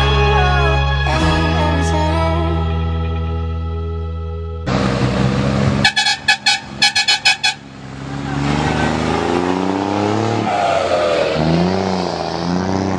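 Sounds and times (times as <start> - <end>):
engine accelerating: 4.6 - 12.9
truck horn toots: 5.8 - 7.7.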